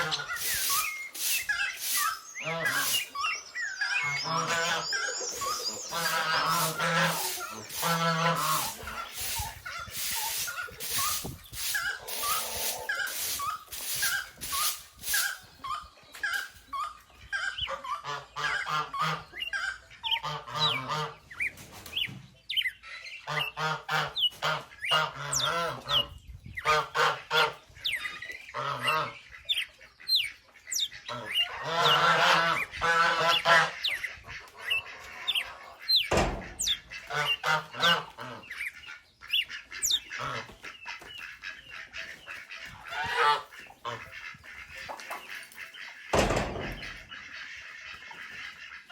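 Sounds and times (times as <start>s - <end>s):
fowl calling loudly: 0.0s - 3.2s, 3.9s - 15.4s, 31.1s - 38.8s, 39.4s - 48.9s
small birds chirping: 0.0s - 48.9s.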